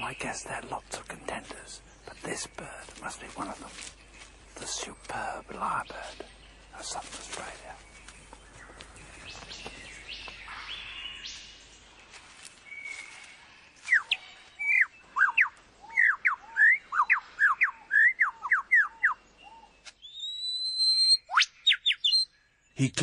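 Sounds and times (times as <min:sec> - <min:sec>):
faint bird calls: 0:12.6 - 0:22.3
lyrebird whistled song: 0:12.7 - 0:22.4.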